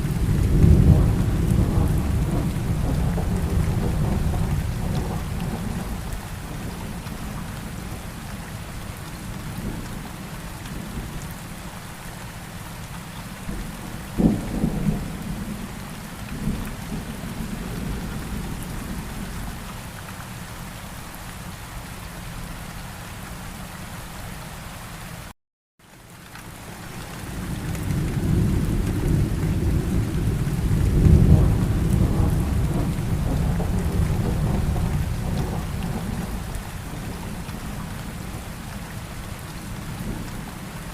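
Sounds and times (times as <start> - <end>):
thunder rumbling and clapping: 0.0 - 8.4, 13.4 - 19.7, 27.0 - 40.9
steady rain falling: 0.0 - 40.9.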